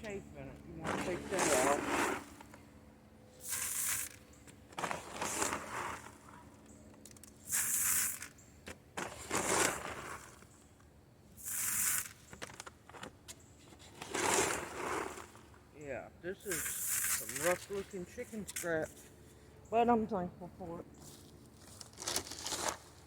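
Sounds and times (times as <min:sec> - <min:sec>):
dry grain rustling by hand: 0:16.5 - 0:18.6.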